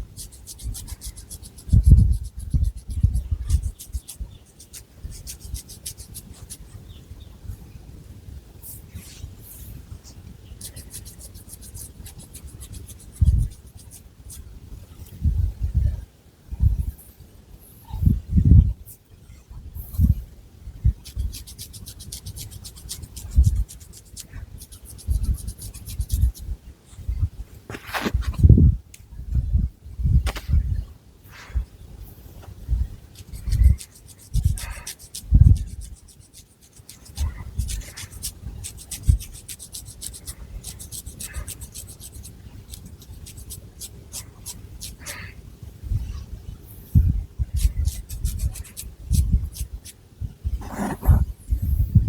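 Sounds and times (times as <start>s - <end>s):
fingernails scratching through hair: 0.1s - 6.6s, 10.6s - 14.4s, 21.0s - 26.5s, 33.2s - 45.2s, 47.5s - 50.0s, 50.6s - 51.3s.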